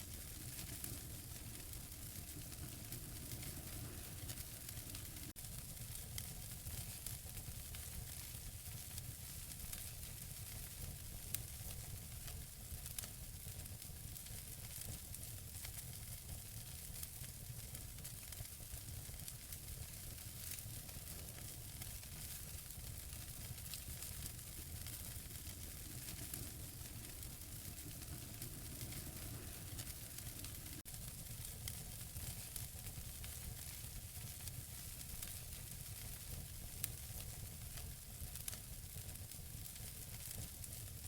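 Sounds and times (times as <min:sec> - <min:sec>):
fire hissing and rumbling: 0:00.0 - 0:41.0
logs crackling and popping: 0:00.1 - 0:05.3, 0:14.2 - 0:40.8.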